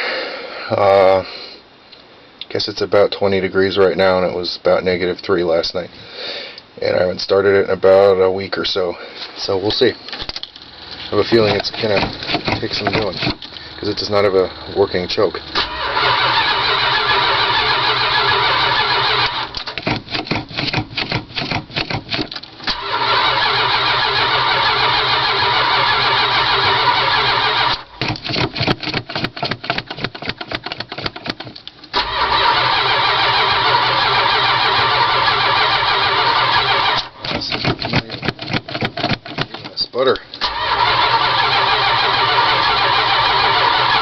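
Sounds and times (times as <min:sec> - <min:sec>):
engine starter cranking: 0:10.4 - 0:44.0
rapid irregular clacking: 0:11.2 - 0:14.3, 0:19.3 - 0:22.5, 0:36.6 - 0:39.9.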